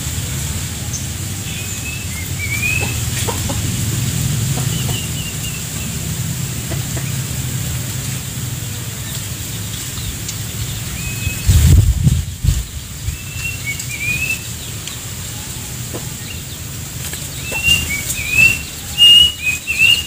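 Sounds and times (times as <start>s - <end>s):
small birds chirping: 0.0s - 20.0s
chickens clucking: 0.6s - 12.6s, 13.3s - 20.0s
low rumble: 10.0s - 13.3s.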